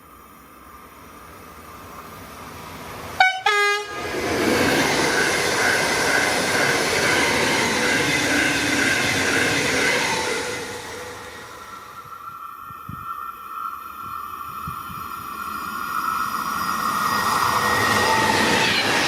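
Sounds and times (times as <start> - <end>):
rail noise: 0.0 - 19.0
train rushing past with whine: 0.0 - 19.0
two-tone train horn: 3.2 - 4.0.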